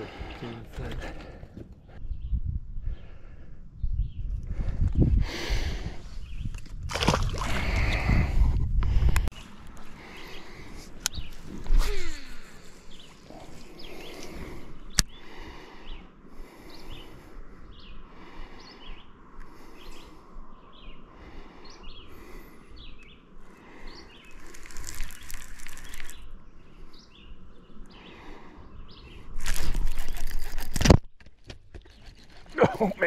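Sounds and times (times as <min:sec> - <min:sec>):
songbirds chirping: 0:00.0 - 0:06.6, 0:07.6 - 0:30.6
faint outdoor noise: 0:00.0 - 0:33.0.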